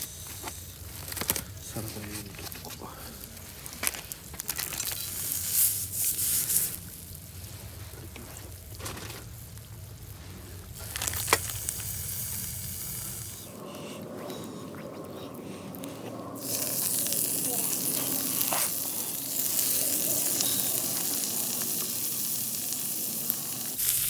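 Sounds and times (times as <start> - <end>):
spitting and crackling: 0.0 - 24.0
food sizzling in a pan: 4.8 - 7.5, 16.4 - 24.0.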